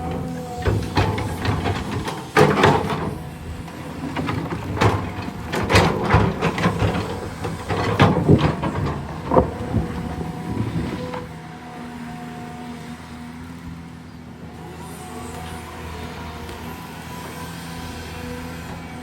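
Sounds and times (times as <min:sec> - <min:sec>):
metallic clanks and scraping knocks: 0:00.0 - 0:11.3
heavy diesel engine running: 0:00.0 - 0:19.0.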